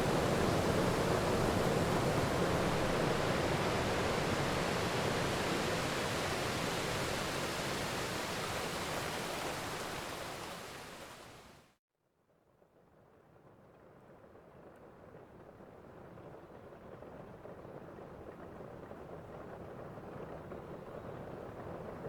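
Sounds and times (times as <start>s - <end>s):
steady rain: 0.0s - 11.6s.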